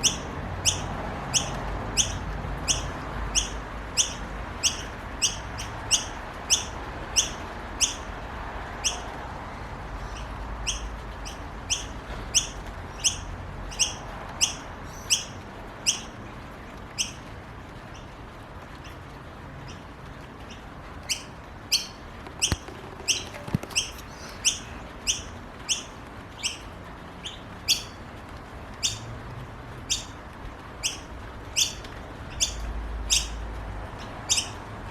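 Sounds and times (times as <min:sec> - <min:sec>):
bird chicks begging chirps: 0:00.0 - 0:08.1, 0:08.8 - 0:09.1, 0:10.0 - 0:16.2, 0:20.5 - 0:28.0, 0:28.8 - 0:29.1, 0:29.9 - 0:30.2, 0:30.8 - 0:33.4, 0:34.0 - 0:34.6.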